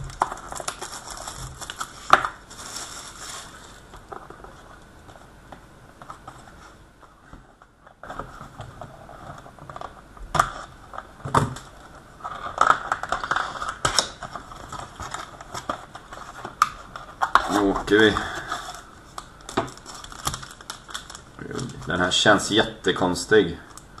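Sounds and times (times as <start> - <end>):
hands opening card packaging: 0.0 - 4.3.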